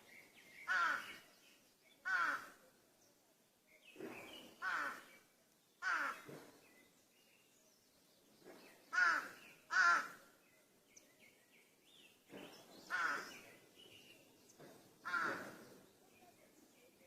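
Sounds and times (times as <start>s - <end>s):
small birds chirping: 0.0s - 17.0s
crows cawing: 0.7s - 1.2s, 2.0s - 2.6s, 4.6s - 5.1s, 5.8s - 6.3s, 8.9s - 10.2s, 12.9s - 13.4s, 15.0s - 15.6s.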